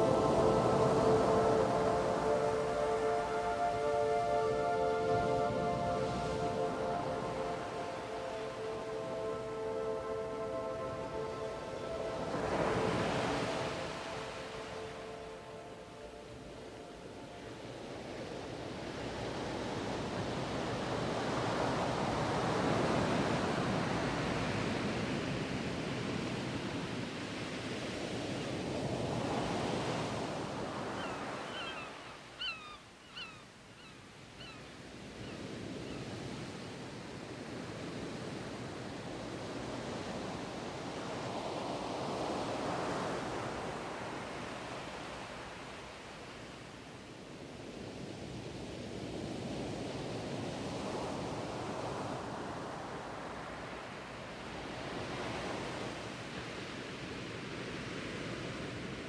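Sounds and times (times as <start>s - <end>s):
sea waves washing in: 0.0s - 31.9s.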